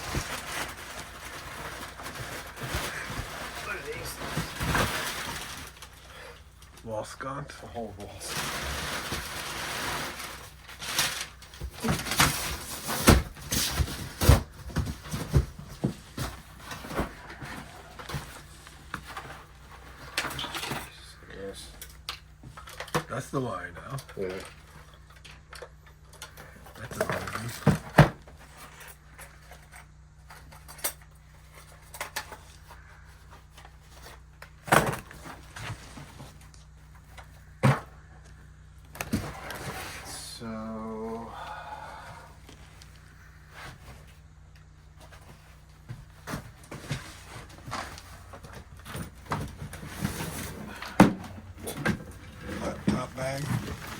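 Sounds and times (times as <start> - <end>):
items knocking and clattering: 0.0 - 5.9, 8.3 - 21.0, 24.4 - 36.4, 45.0 - 53.9.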